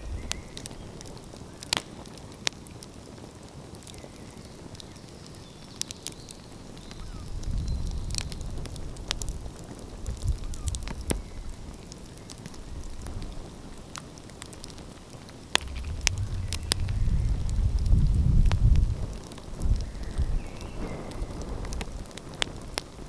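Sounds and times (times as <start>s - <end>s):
low rumble: 15.6s - 19.9s
wood fire crackling: 15.6s - 19.9s
fire popping: 15.6s - 20.5s.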